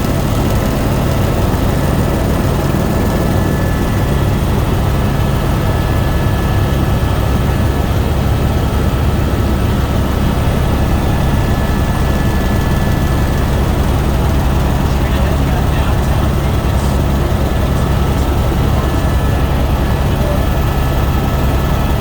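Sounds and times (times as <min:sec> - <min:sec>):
helicopter drone: 0:00.0 - 0:22.0
faint high whine: 0:09.0 - 0:22.0.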